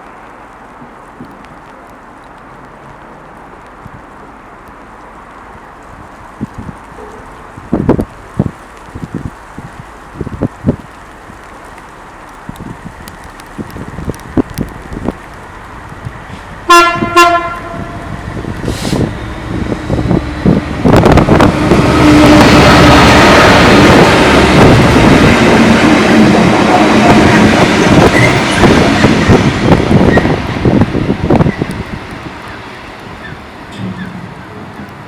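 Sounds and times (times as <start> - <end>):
train passing with rail noise: 0.0 - 35.0
train horn blasts: 16.7 - 18.2.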